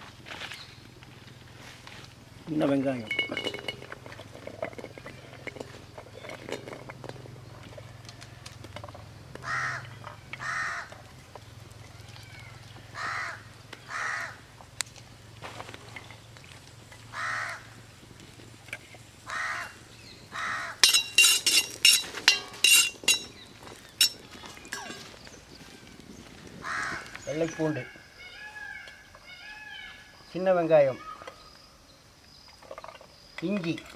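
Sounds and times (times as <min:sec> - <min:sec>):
crows cawing: 0:09.4 - 0:11.0, 0:12.3 - 0:14.4, 0:17.1 - 0:17.8, 0:19.3 - 0:20.9, 0:26.6 - 0:30.1
sharp metallic clinks: 0:20.8 - 0:25.2.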